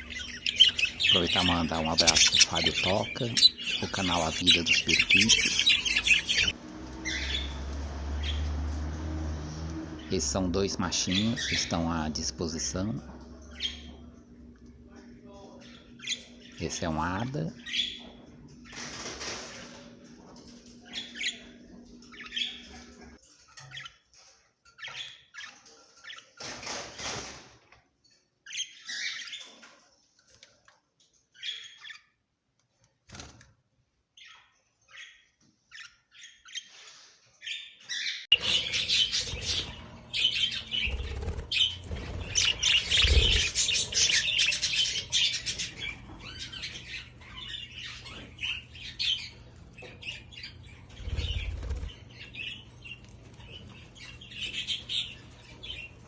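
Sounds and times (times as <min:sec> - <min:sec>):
low steady hum: 0:00.0 - 0:23.2
birds chirping: 0:00.0 - 0:56.0
wing flutters: 0:38.4 - 0:45.2, 0:50.9 - 0:52.2.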